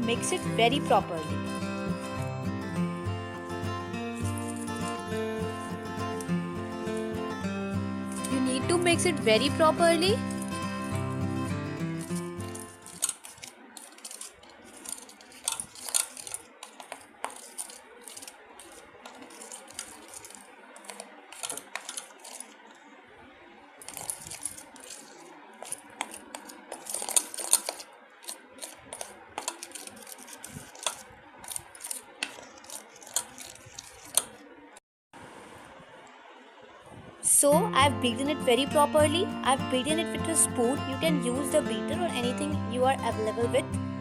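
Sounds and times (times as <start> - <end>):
spoon clinking and scraping bowl: 10.2 - 11.0, 11.8 - 22.5, 23.9 - 34.3.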